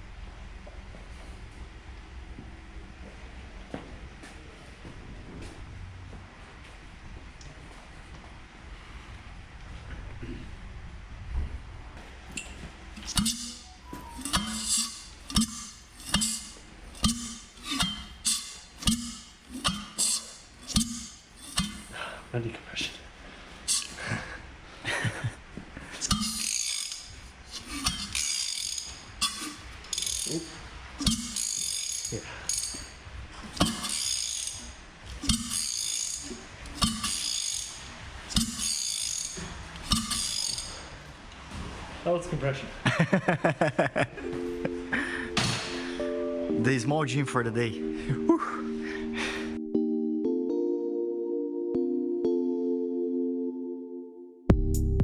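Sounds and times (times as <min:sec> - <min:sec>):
rotary engine compression puffs: 0:12.9 - 0:22.2, 0:25.9 - 0:41.1.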